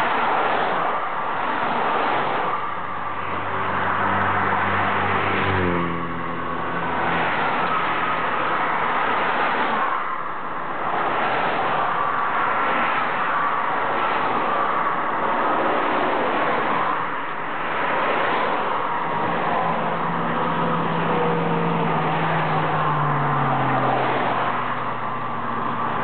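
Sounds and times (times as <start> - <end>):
highway traffic rush: 0.0 - 26.0
wind: 0.0 - 26.0
vehicle passing close by: 3.2 - 9.9, 17.7 - 26.0.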